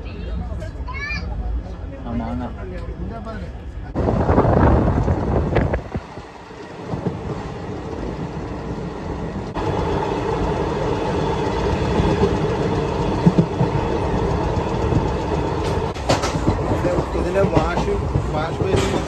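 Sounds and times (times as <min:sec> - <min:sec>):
train coach rumbling: 0:00.0 - 0:19.0.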